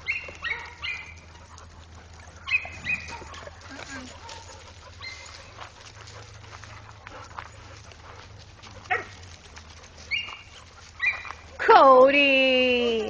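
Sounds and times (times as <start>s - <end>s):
dog barking: 0.0s - 1.2s, 2.4s - 3.4s, 8.9s - 9.2s.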